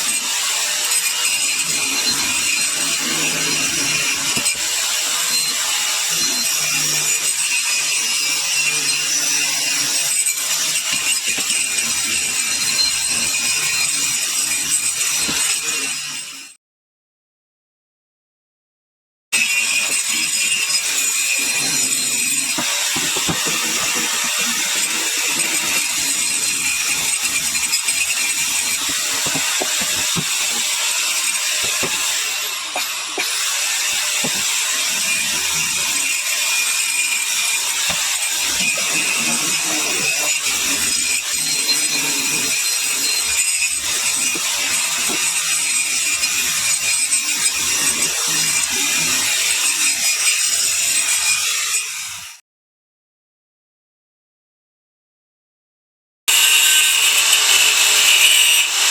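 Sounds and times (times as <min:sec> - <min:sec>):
angle grinder grinding stone: 0:00.0 - 0:16.6, 0:19.4 - 0:52.3, 0:56.3 - 0:58.9.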